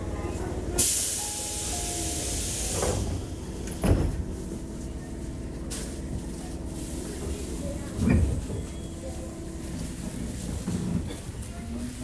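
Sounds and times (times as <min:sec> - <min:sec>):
train low hum: 0:00.0 - 0:12.0
train door air hiss: 0:00.8 - 0:04.2
train doors thudding shut: 0:01.8 - 0:04.3.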